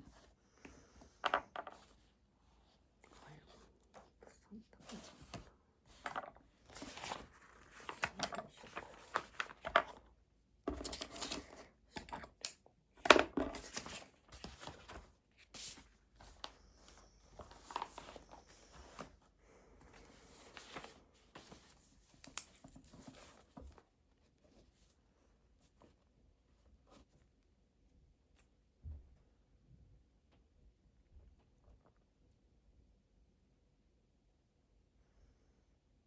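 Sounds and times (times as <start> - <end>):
paper rustling and crinkling: 4.8 - 10.1, 10.7 - 11.7, 13.0 - 23.9.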